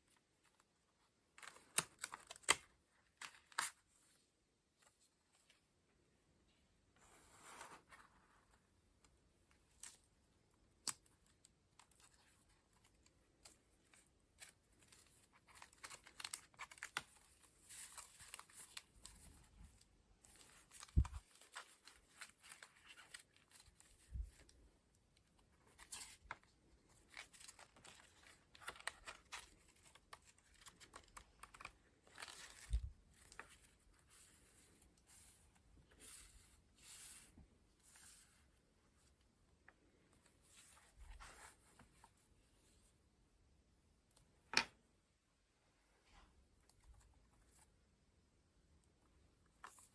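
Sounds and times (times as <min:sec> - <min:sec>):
paper pages rustling: 0:11.8 - 0:24.6, 0:25.6 - 0:38.5.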